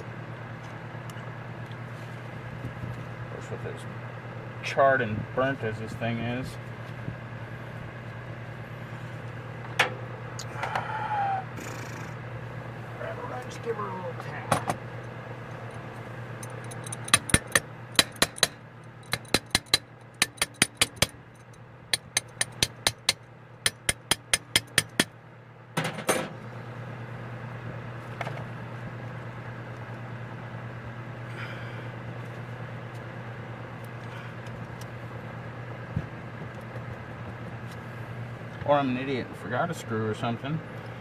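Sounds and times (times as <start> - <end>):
steady low hum: 0.0 - 41.0
wrench tapping on metal: 16.4 - 21.2, 21.9 - 25.1.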